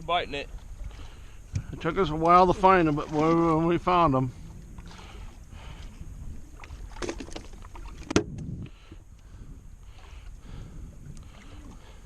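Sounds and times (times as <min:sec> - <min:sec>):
steady low rumble: 0:03.6 - 0:12.0.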